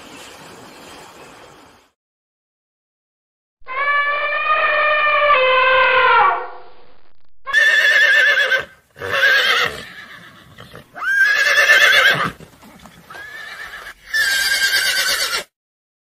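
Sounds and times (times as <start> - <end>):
horse neighing: 7.5 - 15.5.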